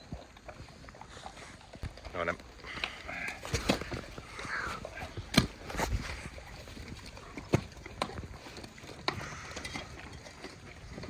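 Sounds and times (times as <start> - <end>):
dogs chewing bones: 0.0 - 11.0.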